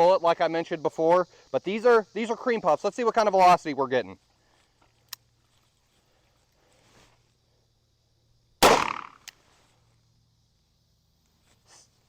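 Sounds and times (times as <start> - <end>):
revolver gunshot: 8.6 - 9.2.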